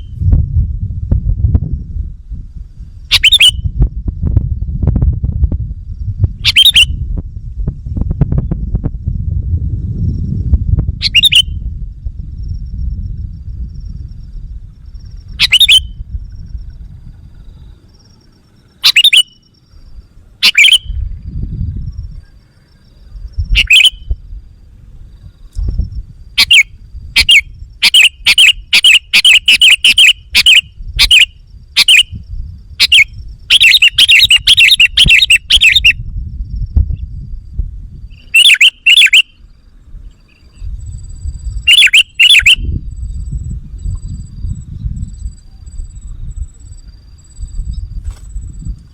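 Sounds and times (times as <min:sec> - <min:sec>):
low rumble: 0:00.0 - 0:18.8, 0:19.8 - 0:27.8, 0:35.9 - 0:38.2, 0:39.4 - 0:41.7, 0:42.6 - 0:48.9
bulbul bubbly calls: 0:03.1 - 0:03.6, 0:06.4 - 0:07.0, 0:11.0 - 0:11.5, 0:15.3 - 0:16.0, 0:18.7 - 0:19.4, 0:20.4 - 0:21.3, 0:23.5 - 0:24.1, 0:26.4 - 0:32.1, 0:32.8 - 0:36.0, 0:38.1 - 0:39.4, 0:41.6 - 0:42.7.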